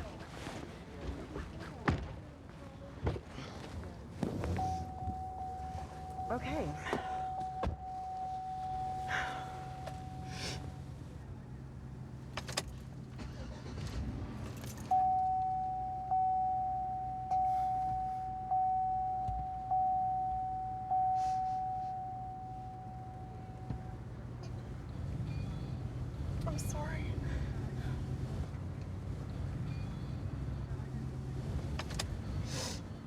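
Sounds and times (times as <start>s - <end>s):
low car hum: 0.0s - 33.0s
car dings: 4.6s - 10.8s, 14.6s - 24.6s
car warning chime tone: 4.6s - 11.0s, 14.8s - 24.5s.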